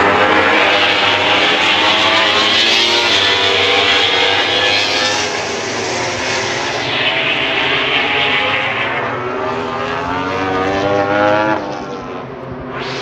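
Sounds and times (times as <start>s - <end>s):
racing motorcycles passing: 0.0s - 13.0s.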